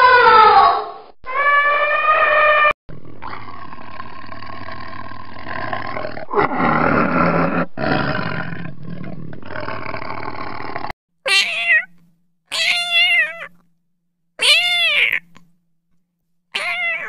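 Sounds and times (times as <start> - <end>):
tiger roaring and growling: 2.9 - 10.9.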